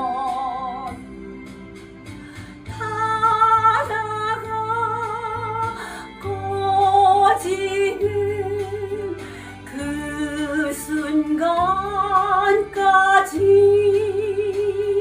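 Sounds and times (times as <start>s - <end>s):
woman singing with vibrato: 0.0s - 1.0s, 2.7s - 15.0s
instrumental backing track: 0.0s - 15.0s.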